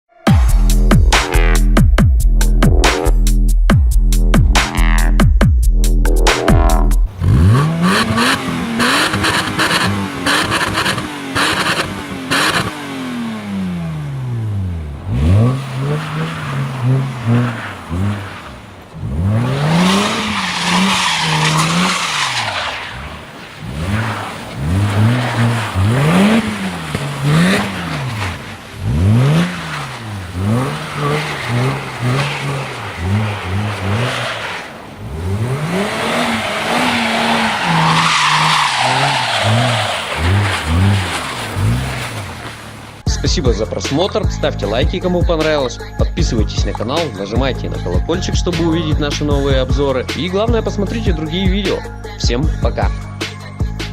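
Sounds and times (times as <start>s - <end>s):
car engine revving hard: 6.3s - 43.0s.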